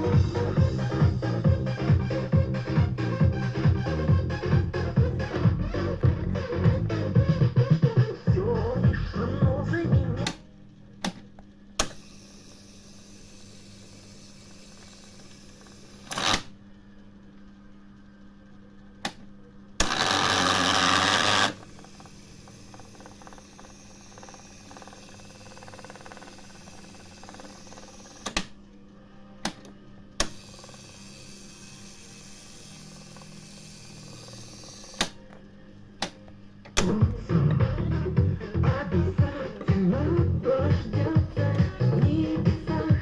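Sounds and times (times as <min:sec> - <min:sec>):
music from tape recorder: 0:00.0 - 0:10.5, 0:19.8 - 0:28.6, 0:29.4 - 0:35.4, 0:36.0 - 0:43.0
steady low hum: 0:00.0 - 0:43.0.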